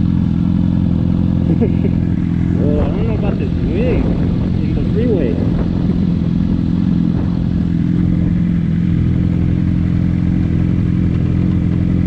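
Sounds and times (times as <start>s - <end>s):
motorcycle engine running: 0.0s - 12.0s
road rumble: 0.0s - 12.0s
wind rush: 2.2s - 9.5s.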